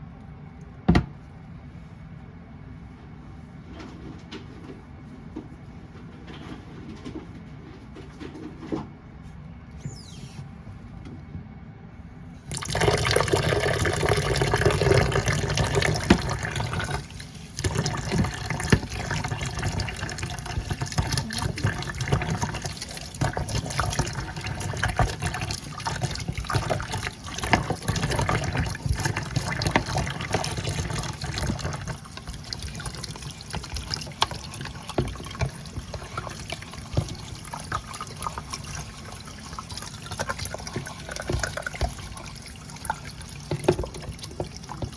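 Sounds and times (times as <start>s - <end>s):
drain gurgling: 12.4s - 44.9s
tap water running into sink: 12.5s - 44.9s.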